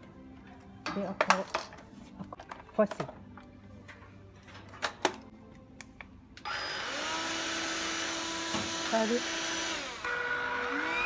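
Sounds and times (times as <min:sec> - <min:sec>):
vacuum cleaner motor running: 0:06.5 - 0:11.0.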